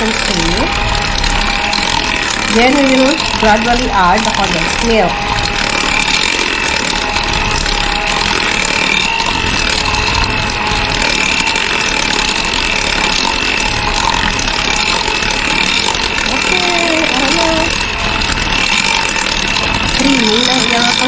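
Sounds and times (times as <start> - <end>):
beaters whipping butter in bowl: 0.0 - 21.0
electric hand mixer whining: 0.0 - 21.0.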